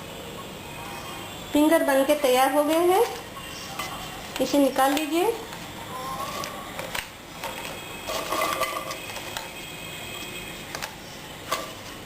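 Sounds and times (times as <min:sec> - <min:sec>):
dishes clinking: 0:07.4 - 0:09.5.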